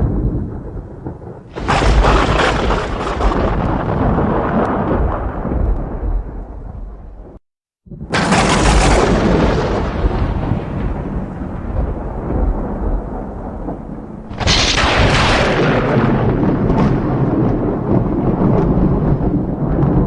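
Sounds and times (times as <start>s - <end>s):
sharp thunder crack: 0.0s - 20.0s
thunder rumbling: 0.0s - 20.0s.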